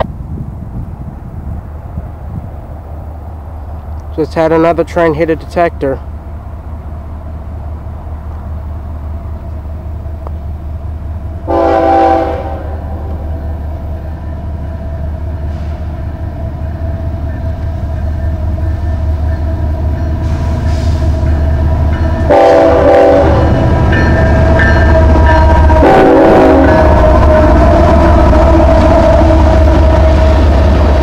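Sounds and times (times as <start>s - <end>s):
diesel locomotive engine drone: 0.0s - 31.0s
train horn blast: 11.4s - 13.3s, 22.2s - 23.7s, 24.9s - 30.5s.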